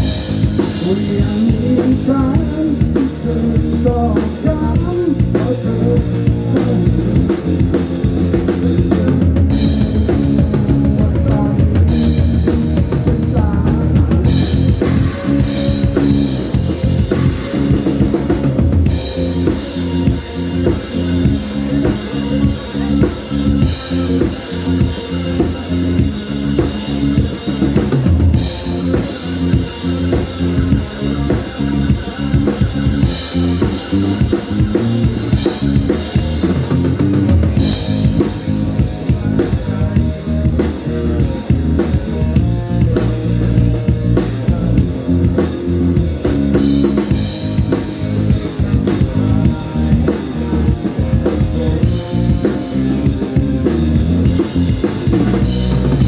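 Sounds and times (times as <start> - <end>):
live rock band: 0.0 - 56.0.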